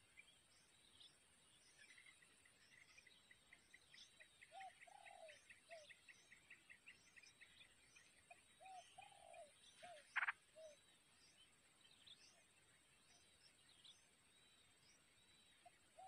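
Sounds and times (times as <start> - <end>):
high bird chirps: 10.0 - 10.4.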